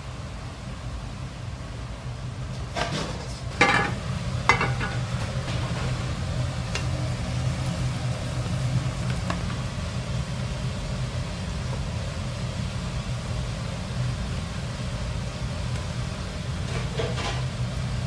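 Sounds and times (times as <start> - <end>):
metal utensil striking a pan: 3.6 - 5.1
food sizzling in a pan: 3.6 - 11.4.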